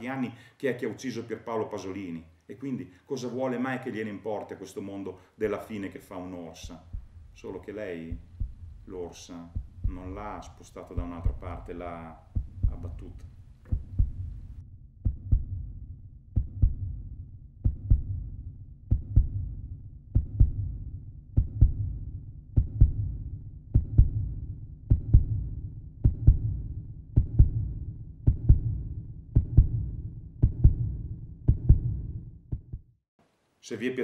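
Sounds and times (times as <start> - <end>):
steady low hum: 5.4 - 15.9
heartbeat double thump: 6.6 - 15.7, 16.4 - 17.0, 17.6 - 18.3, 18.9 - 20.8, 21.4 - 33.0.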